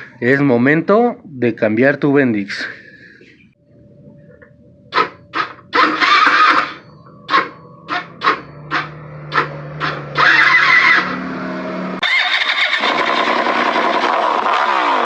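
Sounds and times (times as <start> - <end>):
scooter starter grinding: 4.9 - 11.4, 12.0 - 15.0
scooter engine running: 5.0 - 15.0.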